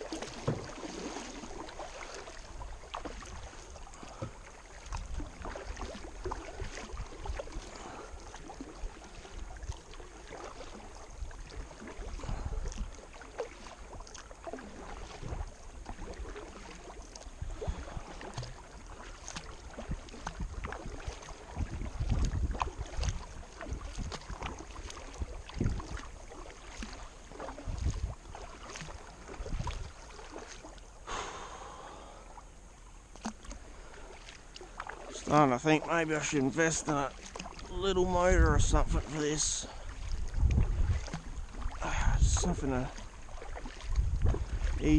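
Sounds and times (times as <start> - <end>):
paddle strokes splashing: 0.0 - 44.9
wind on microphone: 11.1 - 12.9, 17.4 - 18.5, 19.7 - 26.1, 27.5 - 28.4, 29.2 - 30.0, 39.7 - 42.9, 43.6 - 44.9.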